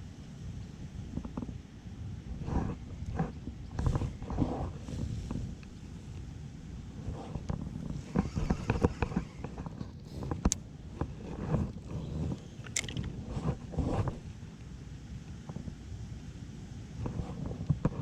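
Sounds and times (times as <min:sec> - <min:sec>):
wind buffeting microphone: 0:00.0 - 0:16.1
gear knocks and clicks: 0:07.4 - 0:14.2.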